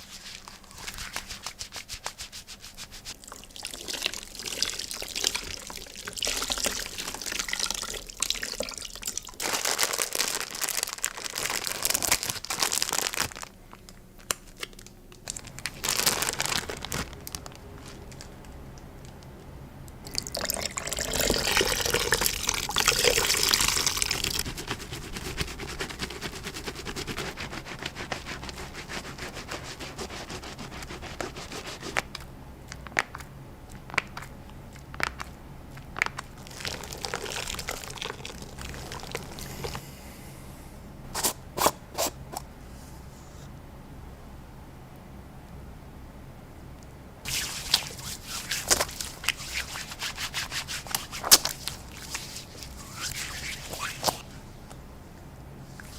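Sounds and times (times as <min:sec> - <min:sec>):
hands rubbing soap: 0:00.0 - 0:03.2, 0:23.6 - 0:39.8, 0:47.3 - 0:54.3
lather squishing: 0:00.0 - 0:09.4, 0:33.7 - 0:39.6, 0:47.3 - 0:54.3.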